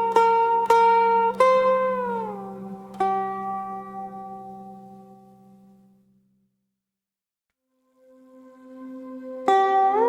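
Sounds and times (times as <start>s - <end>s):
plucked pipa notes: 0.0s - 6.0s, 9.0s - 10.0s.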